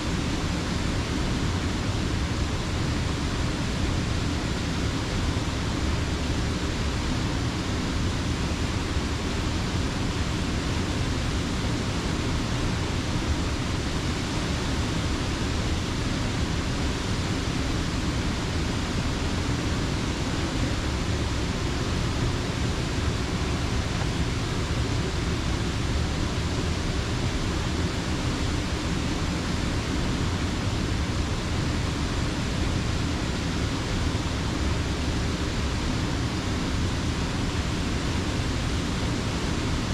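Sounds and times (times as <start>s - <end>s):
water rushing over a dam: 0.0s - 39.9s.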